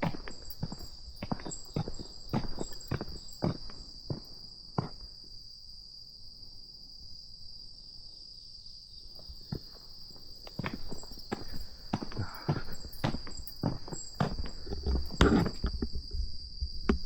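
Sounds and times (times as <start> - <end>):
footsteps on outdoor path: 0.0 - 5.2, 9.2 - 16.1
insects chirring: 0.0 - 17.0.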